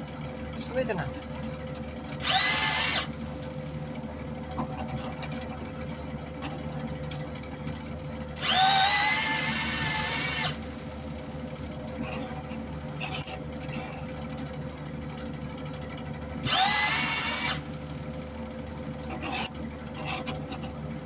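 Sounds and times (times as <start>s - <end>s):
wire-feed motor whirring: 2.2s - 3.2s, 8.4s - 10.7s, 16.4s - 17.7s.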